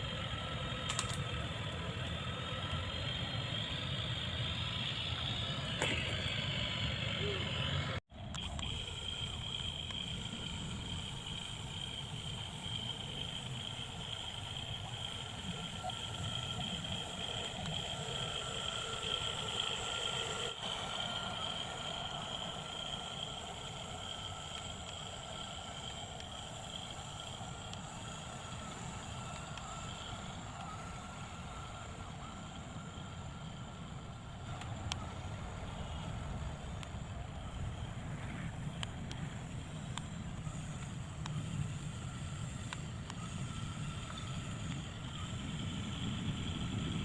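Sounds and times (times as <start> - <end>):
electric motor high whine: 0.0 - 47.0
small clicks: 0.5 - 3.2, 8.2 - 33.1, 34.4 - 37.4.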